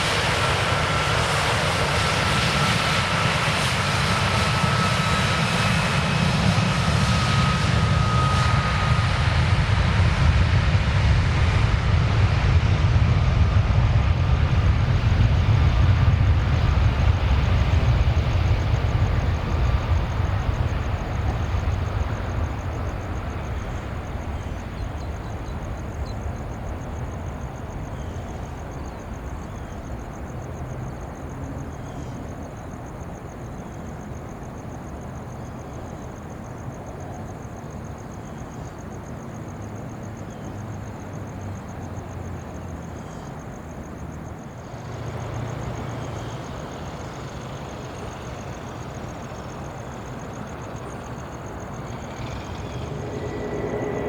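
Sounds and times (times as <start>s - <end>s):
jet airliner engine rumble: 0.0s - 54.0s
faint high-pitched buzz: 51.7s - 54.0s.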